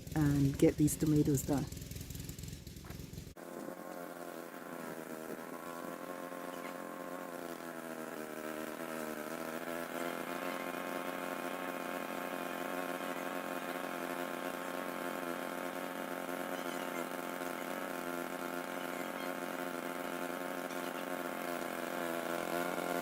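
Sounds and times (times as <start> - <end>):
lawnmower engine running: 0.0 - 23.0.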